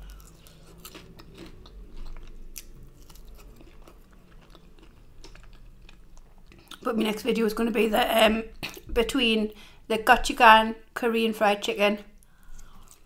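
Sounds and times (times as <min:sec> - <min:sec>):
person chewing and biting food: 0:00.0 - 0:06.8
mouth clicks and crunches: 0:00.0 - 0:06.9.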